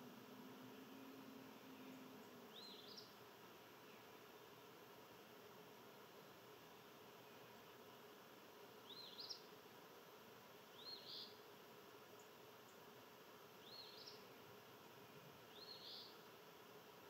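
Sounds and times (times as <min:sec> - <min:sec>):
songbird singing: 0:00.0 - 0:04.6, 0:08.8 - 0:09.6, 0:10.7 - 0:11.4, 0:13.5 - 0:16.3
steady background hiss: 0:00.0 - 0:17.0.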